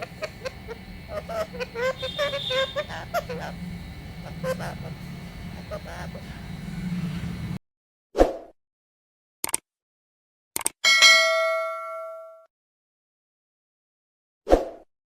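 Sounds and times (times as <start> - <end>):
quick clicks: 9.4 - 9.6, 10.6 - 10.8
bright bell-like ding: 10.9 - 12.4.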